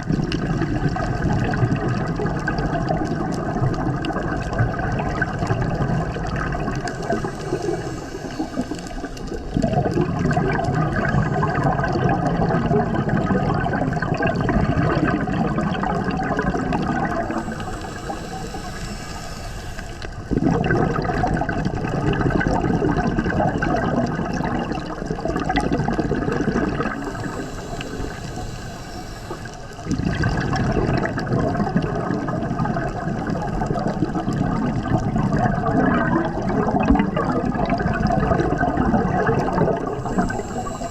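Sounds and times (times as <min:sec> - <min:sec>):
exhaled bubbles rushing: 0:00.0 - 0:40.9
regulator hissing inhale: 0:03.5 - 0:13.1, 0:15.2 - 0:20.5, 0:25.9 - 0:31.2, 0:39.4 - 0:40.9.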